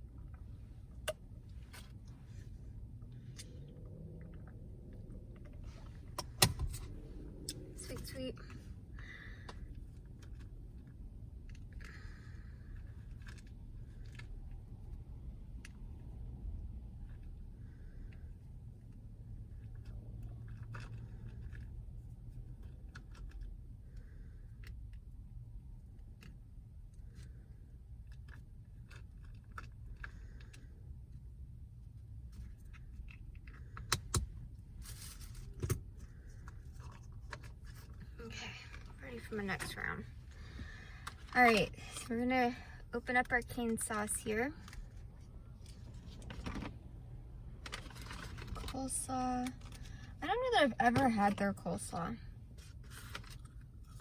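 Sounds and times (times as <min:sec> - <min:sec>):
low steady rumble: 0:00.0 - 0:54.0
steady low hum: 0:00.0 - 0:54.0
chewing and crunching food: 0:08.5 - 0:34.0
faint rustles and clicks: 0:17.0 - 0:54.0.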